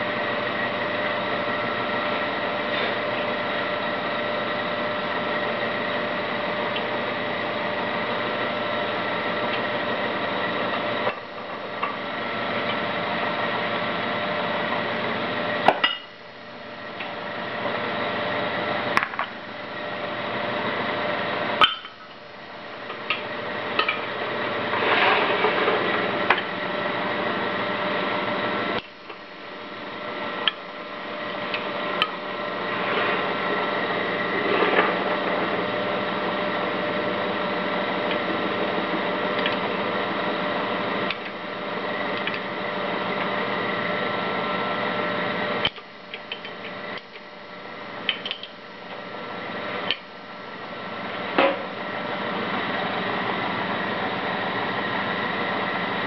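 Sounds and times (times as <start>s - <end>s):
wood lathe motor humming: 0.0s - 56.0s
tool cutting spinning wood: 16.6s - 56.0s.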